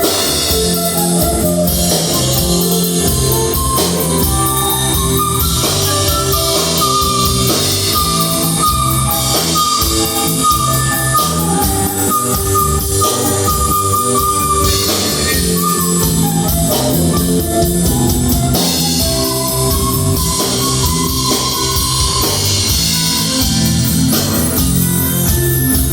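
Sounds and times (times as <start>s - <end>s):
live rock band instrumental: 0.0s - 25.9s.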